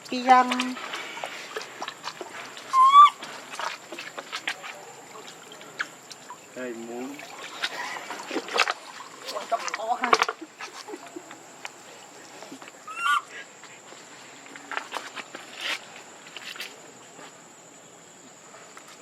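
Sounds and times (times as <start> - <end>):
short high animal call: 2.7 - 3.2.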